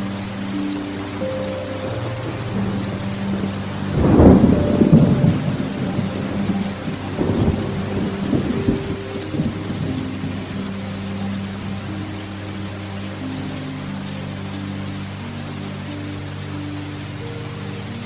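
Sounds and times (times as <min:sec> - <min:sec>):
steady rain: 0:00.0 - 0:18.0
thunder rumbling: 0:01.2 - 0:12.1.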